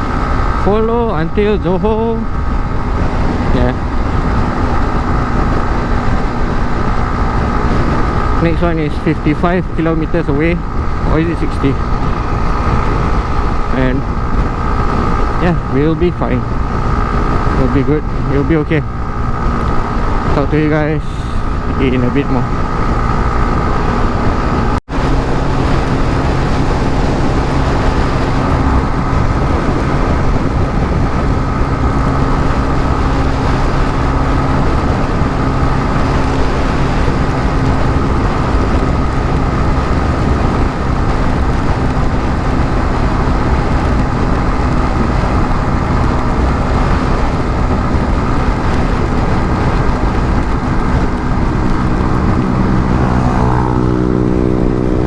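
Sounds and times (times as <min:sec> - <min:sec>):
motorcycle engine cruising: 0:00.0 - 0:55.0
wind rush on microphone: 0:00.0 - 0:55.0.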